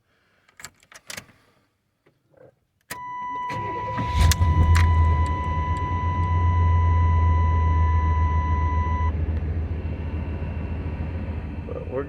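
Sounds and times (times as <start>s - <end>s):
truck engine starting and idling: 3.3s - 12.0s
high-pitched warning tone: 3.5s - 9.2s.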